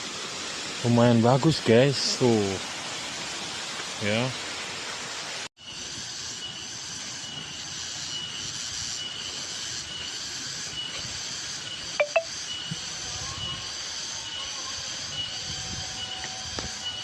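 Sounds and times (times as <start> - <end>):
insects chirping: 5.6 - 17.0.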